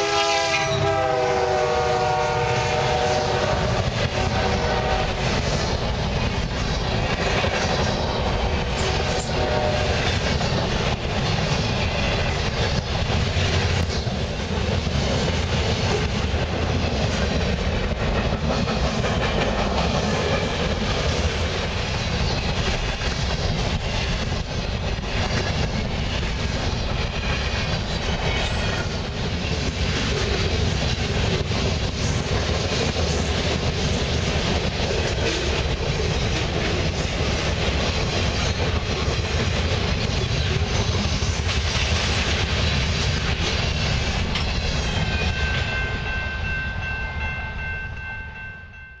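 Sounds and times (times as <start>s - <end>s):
freight train rolling past: 0.0s - 49.0s.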